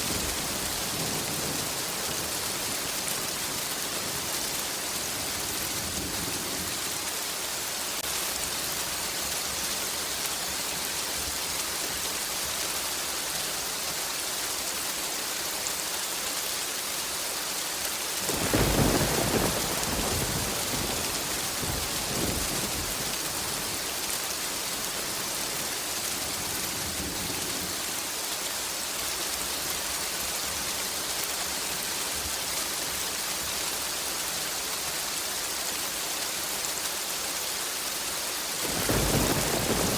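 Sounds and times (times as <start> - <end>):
steady rain: 0.0 - 39.9
thunder rumble: 18.2 - 25.4, 38.6 - 39.9.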